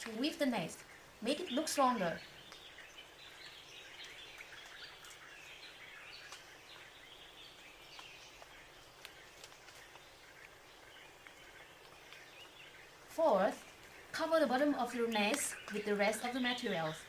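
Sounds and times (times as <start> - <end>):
birds chirping: 0.0 - 17.0
faint clicks: 2.4 - 2.7, 6.2 - 6.5, 11.2 - 12.6.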